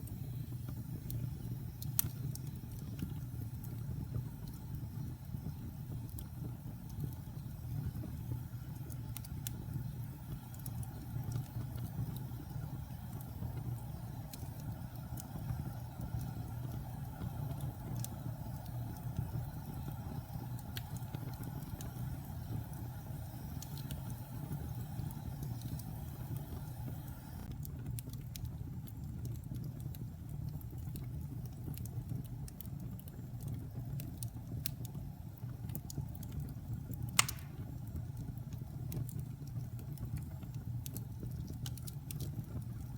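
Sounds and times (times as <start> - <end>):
fire burning in fireplace: 0.0 - 42.9
fire crackles: 0.0 - 42.9
loud sharp pop: 37.2 - 37.6.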